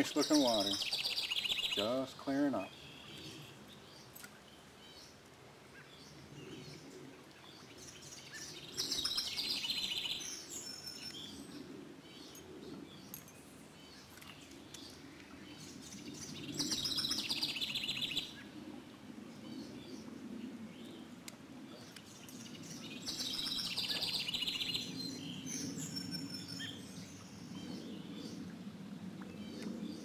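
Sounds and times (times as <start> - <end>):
songbird trilling: 0.0 - 3.2, 16.4 - 18.3, 22.8 - 26.8
soft bird chirps: 21.8 - 27.8.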